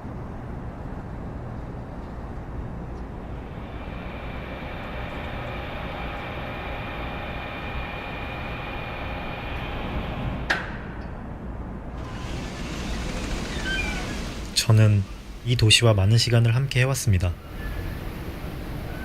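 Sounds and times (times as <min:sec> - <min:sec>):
low vehicle or city rumble: 0:00.0 - 0:19.0
high whine of held tones: 0:12.0 - 0:19.0.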